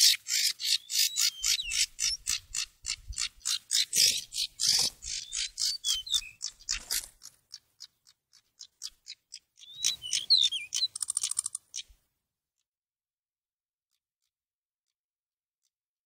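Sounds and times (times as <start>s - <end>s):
bird harsh rasping calls: 0.0s - 12.0s
bird buzzy rattle: 2.0s - 7.4s, 10.7s - 11.8s
bird whistled notes: 9.6s - 11.4s.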